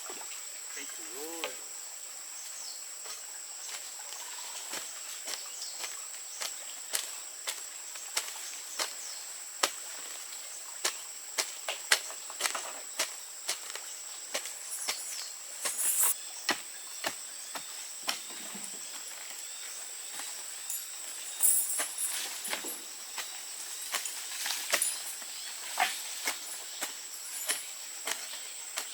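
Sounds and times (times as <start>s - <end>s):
high-pitched insect drone: 0.5s - 1.9s, 13.9s - 16.4s.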